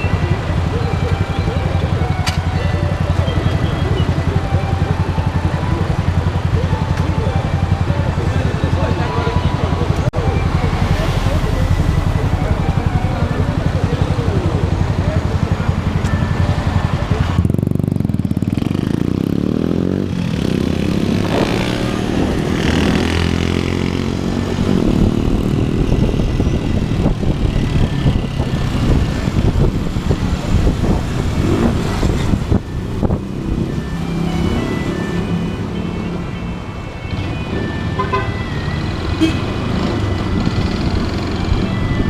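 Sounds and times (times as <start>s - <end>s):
motorcycle engine accelerating: 3.0s - 35.8s.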